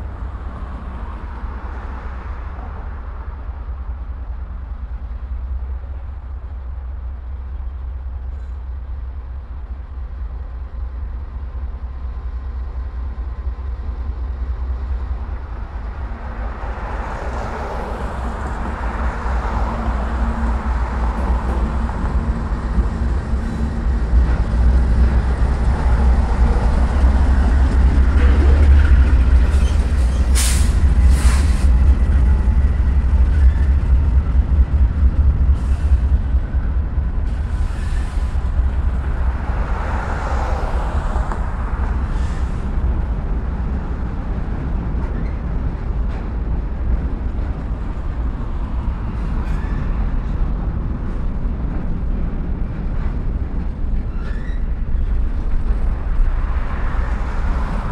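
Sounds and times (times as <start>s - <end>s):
diesel locomotive rumble: 0.0s - 57.9s
freight cars rolling: 13.0s - 57.9s
sharp air hisses: 30.0s - 31.8s.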